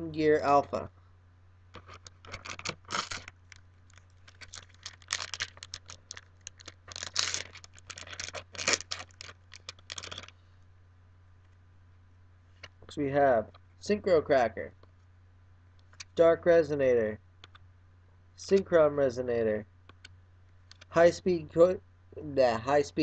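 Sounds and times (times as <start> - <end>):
foil pack crinkling and tearing: 1.8 - 10.4.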